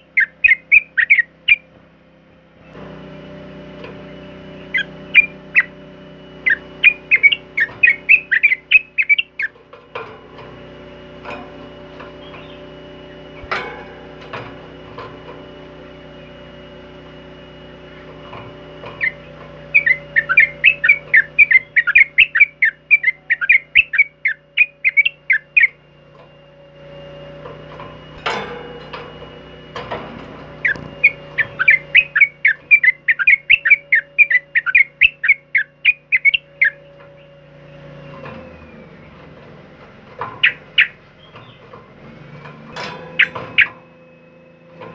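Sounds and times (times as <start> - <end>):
bulbul singing bright notes: 4.6 - 5.8, 6.4 - 9.6, 19.0 - 25.8, 30.6 - 36.9.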